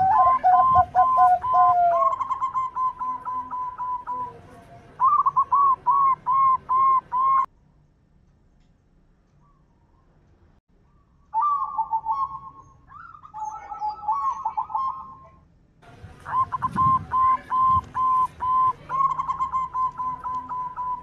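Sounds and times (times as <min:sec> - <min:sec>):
doves cooing: 0:00.0 - 0:07.5, 0:11.4 - 0:15.3, 0:16.2 - 0:21.0.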